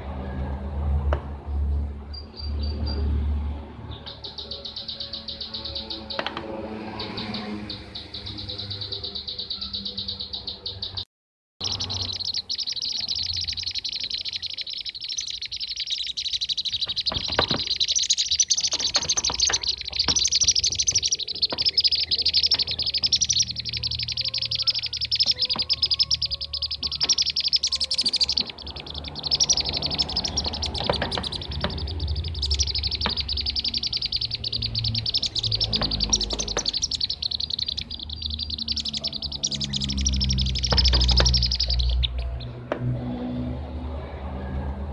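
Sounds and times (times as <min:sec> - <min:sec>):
birds chirping rapidly: 0:01.4 - 0:44.0.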